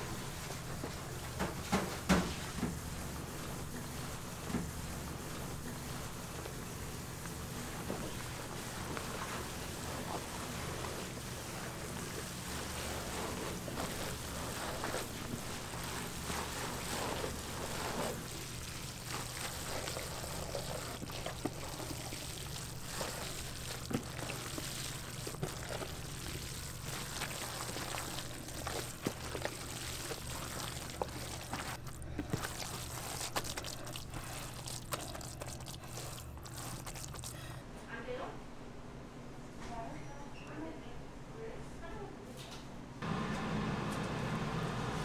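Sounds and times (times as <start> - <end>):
low steady hum: 0.0 - 45.0
liquid pouring: 5.2 - 37.5.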